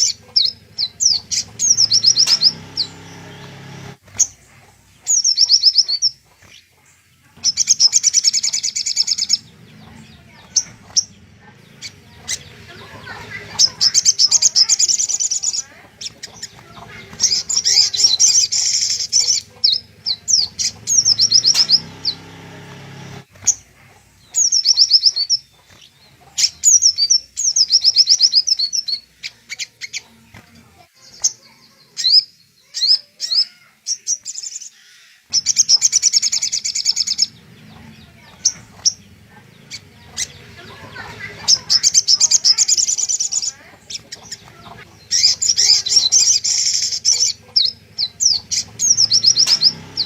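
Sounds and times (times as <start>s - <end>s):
bird singing fast high trills: 0.0s - 6.6s, 7.5s - 25.8s, 39.7s - 50.0s.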